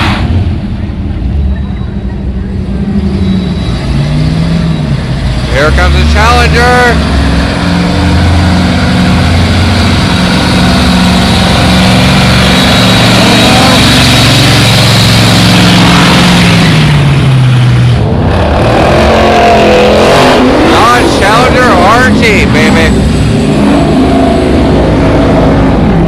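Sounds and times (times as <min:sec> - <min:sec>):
car engine at high revs: 0:00.0 - 0:26.0.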